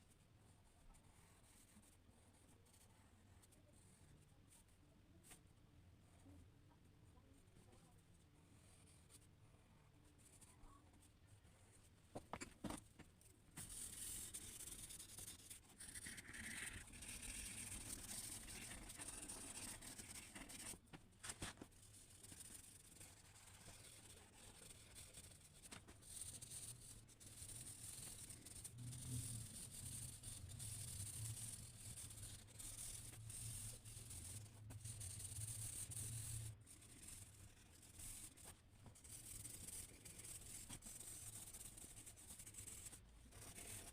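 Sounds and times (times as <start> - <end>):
drawing tool scratching paper: 13.6 - 43.9.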